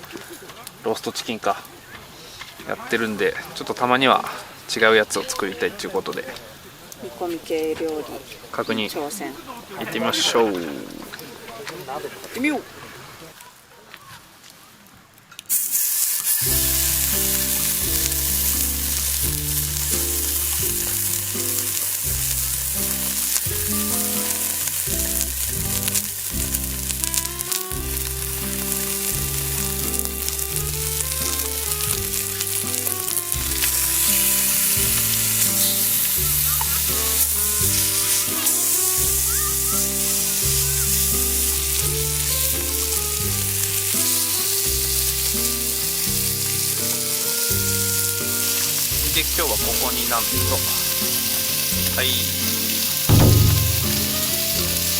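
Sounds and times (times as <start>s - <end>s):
food sizzling in a pot: 15.5s - 54.9s
background music with bass: 16.4s - 44.0s, 50.2s - 54.9s.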